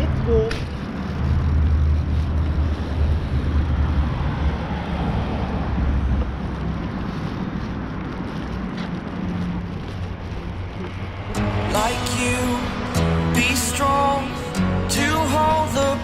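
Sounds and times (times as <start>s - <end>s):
wind rumble on microphone: 0.0s - 12.9s
city traffic: 0.0s - 16.0s.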